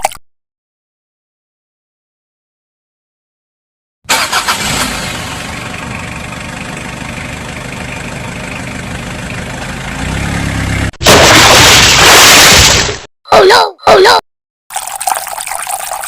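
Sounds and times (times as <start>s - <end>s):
vehicle engine idling: 4.1s - 10.9s.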